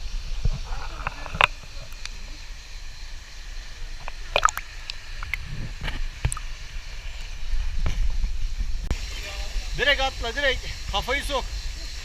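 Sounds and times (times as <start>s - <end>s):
water splashing in a pool: 4.0s - 7.2s
short sharp splashes: 4.3s - 5.4s.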